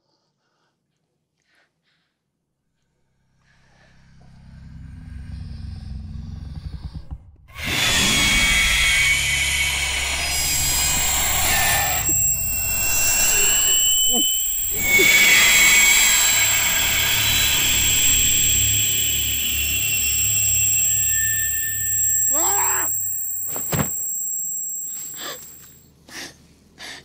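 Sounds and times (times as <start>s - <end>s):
low rumble: 3.8s - 7.5s
loud roaring hissing noise: 7.6s - 24.4s
high ringing tones: 8.4s - 25.9s.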